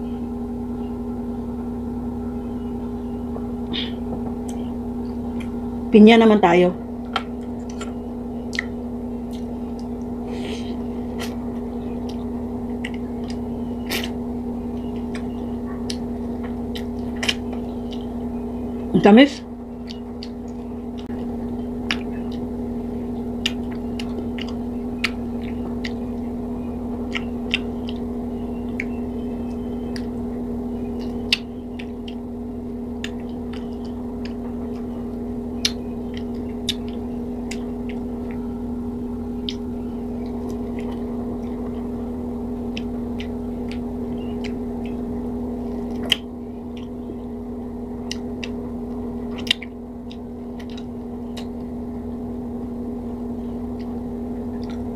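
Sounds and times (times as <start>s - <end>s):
low hum: 0.0s - 54.9s
wet mouth clicks: 45.8s - 46.9s, 49.3s - 51.6s.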